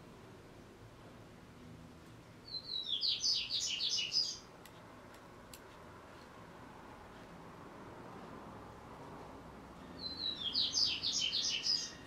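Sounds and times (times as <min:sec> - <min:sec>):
songbird chirping: 0:02.4 - 0:04.6, 0:09.8 - 0:12.0.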